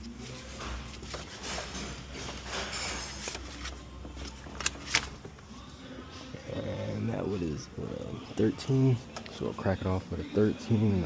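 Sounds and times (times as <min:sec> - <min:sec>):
tools shuffling and scraping: 0:00.0 - 0:05.2.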